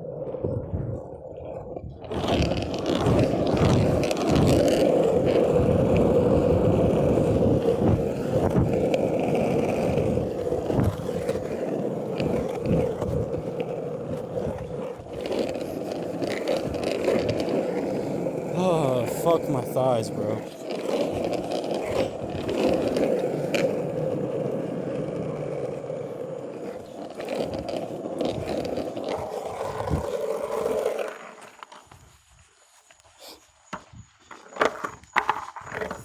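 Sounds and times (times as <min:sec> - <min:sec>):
longboard wheels rumbling on pavement: 0:00.0 - 0:32.3, 0:33.7 - 0:36.0.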